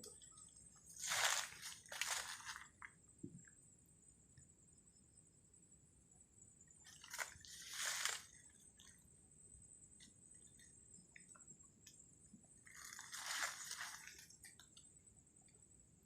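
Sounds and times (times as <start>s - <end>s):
faint high-pitched whine: 0.0s - 16.0s
crunching rustles: 0.9s - 2.9s, 6.9s - 9.0s, 12.6s - 14.7s.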